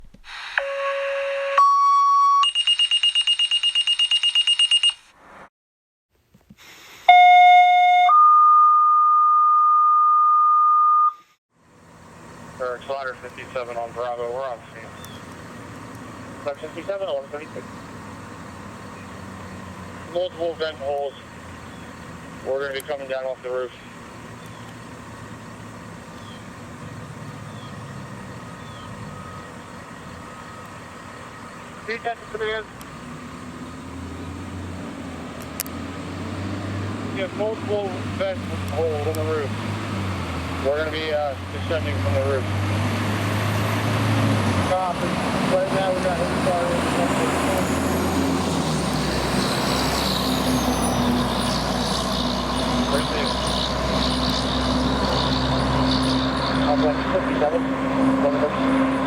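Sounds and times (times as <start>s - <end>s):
radio paging tones: 0.2s - 5.0s, 7.0s - 11.3s.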